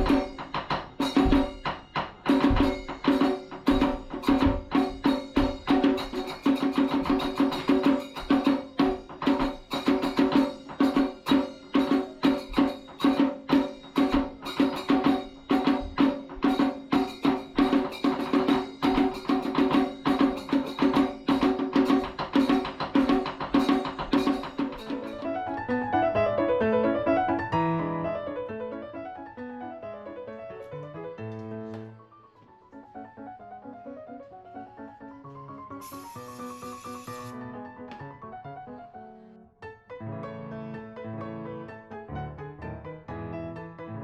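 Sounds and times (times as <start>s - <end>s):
drums beating: 0.0s - 25.4s.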